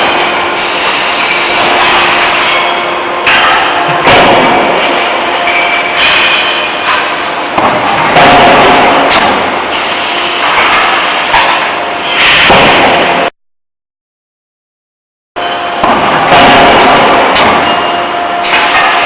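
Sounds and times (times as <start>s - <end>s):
forging hammer striking: 0.0s - 9.8s, 15.8s - 19.0s
workshop noise: 0.0s - 13.3s, 15.4s - 19.0s.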